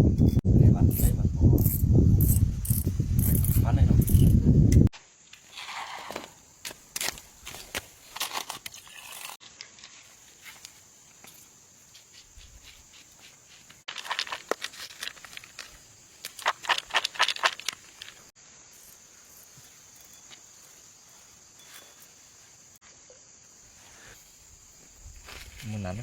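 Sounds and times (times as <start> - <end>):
dry plants crackling and rustling: 6.8 - 18.3
steady high hiss: 17.8 - 26.0.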